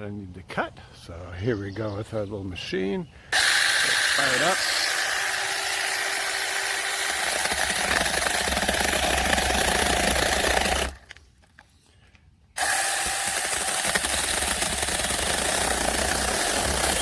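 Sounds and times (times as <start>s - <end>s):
electric chainsaw cutting wood: 3.3s - 11.0s, 12.6s - 17.0s.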